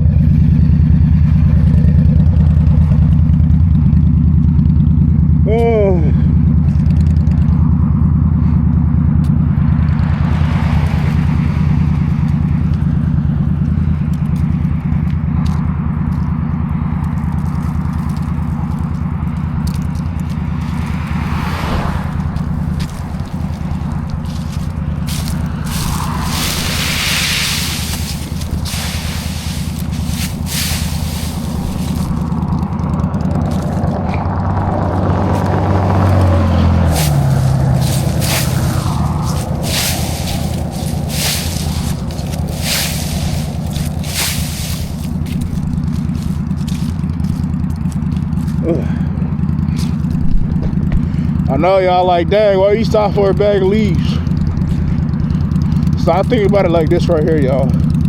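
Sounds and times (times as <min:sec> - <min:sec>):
motorcycle engine running: 0:00.0 - 0:58.0
rushing noise: 0:20.4 - 0:46.5.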